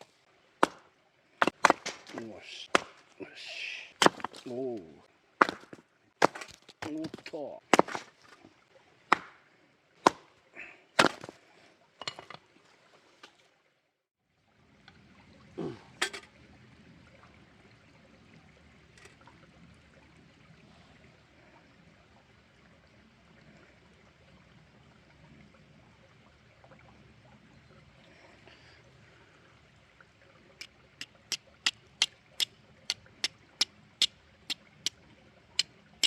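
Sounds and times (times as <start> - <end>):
wood being chopped: 0.6 - 3.1, 4.0 - 4.5, 5.4 - 8.2, 9.1 - 9.4, 10.0 - 10.3, 11.0 - 11.4.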